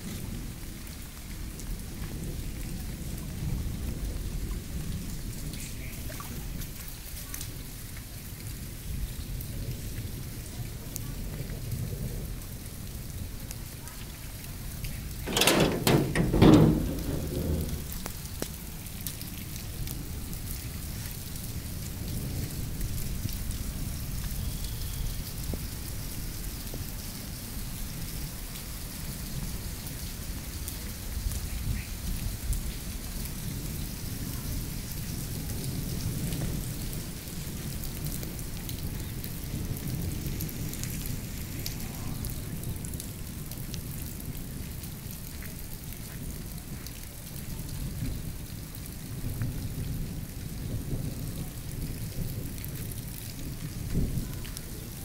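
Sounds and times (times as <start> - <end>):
rain falling on wet ground: 0.0 - 55.0
low rumble: 15.3 - 18.2.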